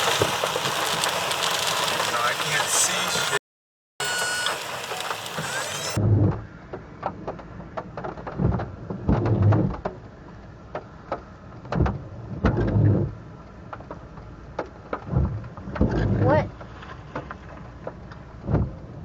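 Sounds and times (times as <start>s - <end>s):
raindrops ticking: 0.0s - 3.4s, 4.0s - 6.0s.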